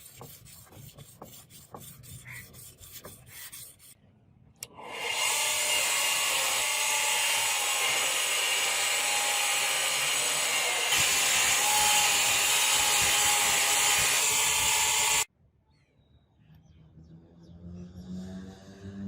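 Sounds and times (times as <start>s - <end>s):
electric grinder on steel: 4.6s - 15.3s.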